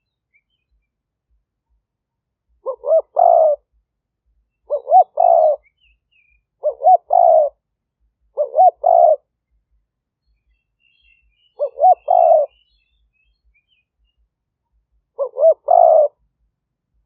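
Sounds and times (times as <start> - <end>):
faint bird chirps: 0.0 - 16.3
dove cooing: 2.6 - 3.7, 4.7 - 5.7, 6.6 - 7.6, 8.3 - 9.3, 11.6 - 12.6, 15.1 - 16.2.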